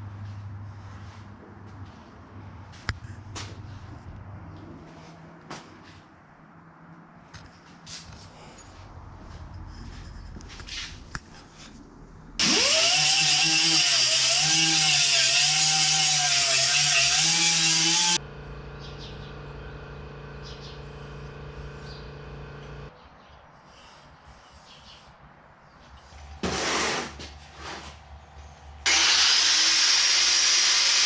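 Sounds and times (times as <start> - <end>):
electric power tool running: 12.4 - 18.2, 28.8 - 31.0
steady machine hum: 18.2 - 22.9.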